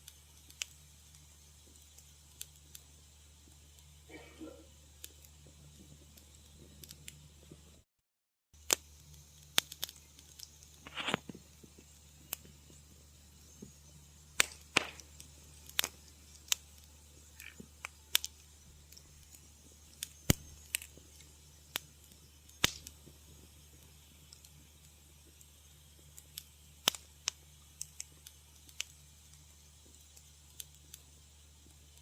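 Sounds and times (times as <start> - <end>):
faint low hum: 0.0 - 7.8
wood fire crackling: 0.0 - 7.8, 8.6 - 32.0.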